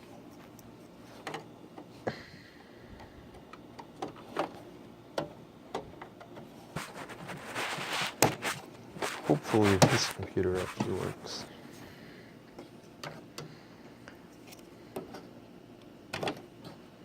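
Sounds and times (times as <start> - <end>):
rustle of handling: 6.6 - 11.6.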